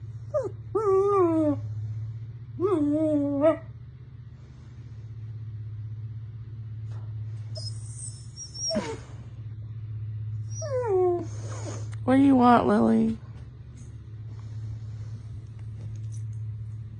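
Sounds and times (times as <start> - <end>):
steady low hum: 0.0 - 16.9
puppy whining: 0.3 - 1.7, 2.6 - 3.7, 7.5 - 9.4, 10.4 - 12.0
puppy squealing: 7.6 - 9.1.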